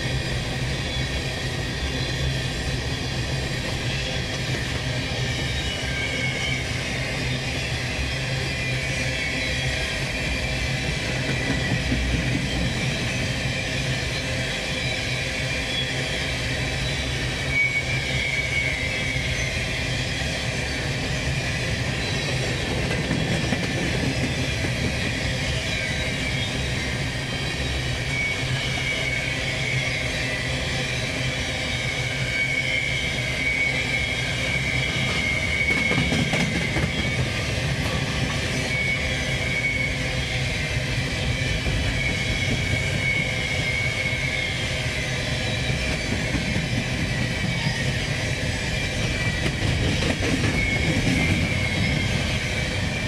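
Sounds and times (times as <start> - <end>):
high wheel squeal: 0.0 - 53.0
steel wheels rumbling on rail: 0.0 - 53.0.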